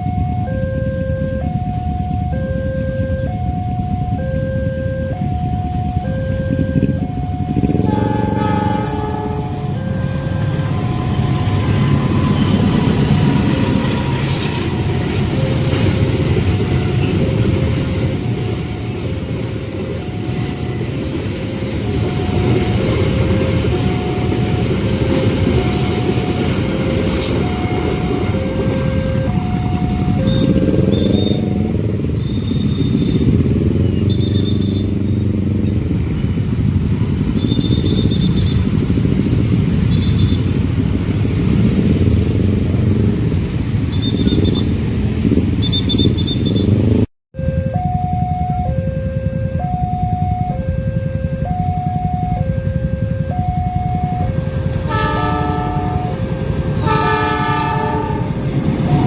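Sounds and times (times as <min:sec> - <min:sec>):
level crossing alarm chime: 0:00.0 - 0:14.3, 0:19.9 - 0:32.2, 0:47.4 - 0:54.8
train rumble: 0:00.0 - 0:59.0.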